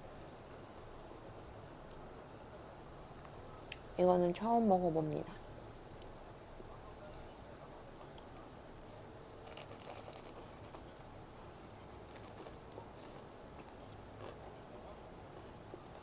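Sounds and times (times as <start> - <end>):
faint chewing of food: 6.0 - 16.0
crisp crunches and clicks: 9.4 - 11.0, 11.6 - 14.7.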